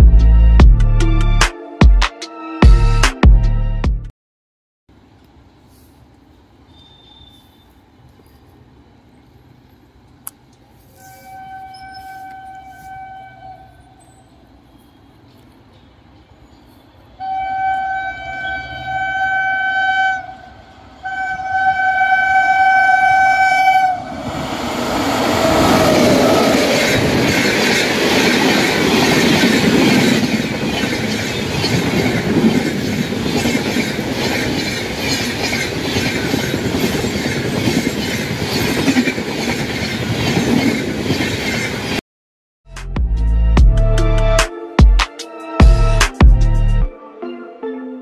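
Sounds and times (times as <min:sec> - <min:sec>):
train horn blasts: 0:10.9 - 0:14.0, 0:17.2 - 0:24.2
train rushing past: 0:13.6 - 0:42.0.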